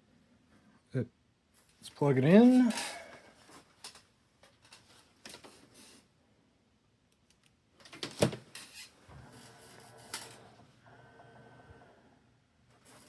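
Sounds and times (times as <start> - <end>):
faint steady hum: 8.5 - 13.0.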